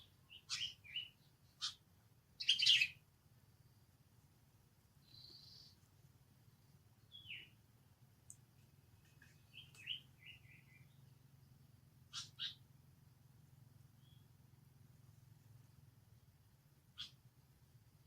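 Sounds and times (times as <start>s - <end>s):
animal chirps and squeaks: 0.4s - 1.8s, 2.4s - 3.0s, 12.1s - 12.6s, 17.0s - 17.2s.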